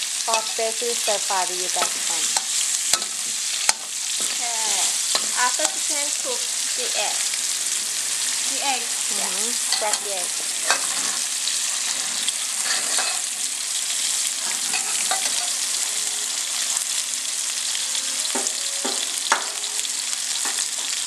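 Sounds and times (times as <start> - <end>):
food sizzling in oil in a wok: 0.0 - 21.0
metal spatula scraping a wok: 1.7 - 6.8, 9.6 - 13.5, 14.4 - 15.6.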